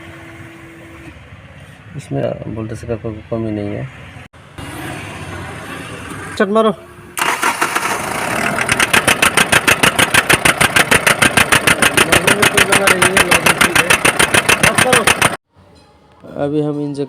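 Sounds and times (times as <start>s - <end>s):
diesel engine cranking and catching: 7.2s - 15.4s
engine rapid regular knock: 8.5s - 15.4s.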